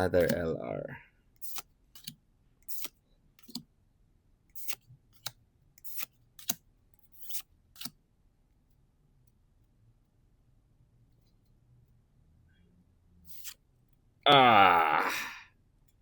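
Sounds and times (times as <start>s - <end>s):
cards swishing and snapping: 7.2s - 8.0s, 13.3s - 13.6s.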